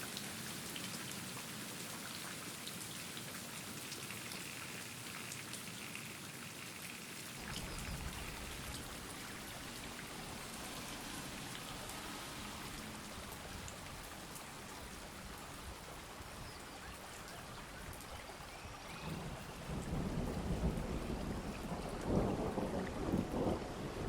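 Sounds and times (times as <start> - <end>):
steady rainfall: 0.0 - 24.0
raindrops ticking: 7.4 - 23.5.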